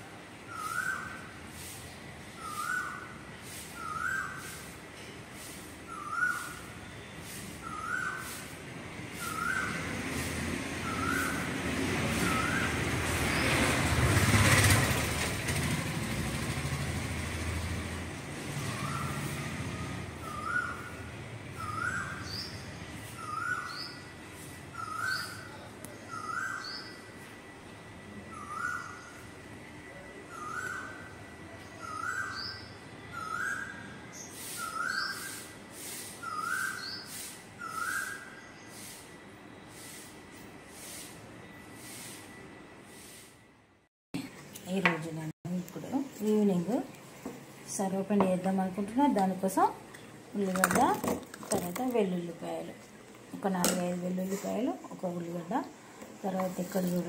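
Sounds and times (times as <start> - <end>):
bird chirp: 0.5 - 1.3, 2.4 - 3.2, 3.8 - 4.7, 5.9 - 8.4, 9.2 - 10.0, 10.8 - 13.7, 18.6 - 27.2, 30.3 - 35.5, 36.2 - 39.0
vehicle passing rumble: 9.0 - 23.5.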